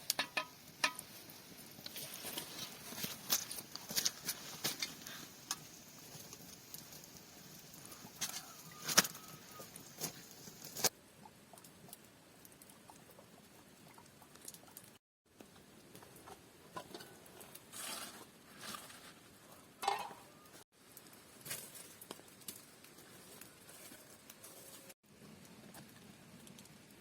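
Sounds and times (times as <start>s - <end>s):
cooking gear clicks and taps: 0.0s - 10.9s.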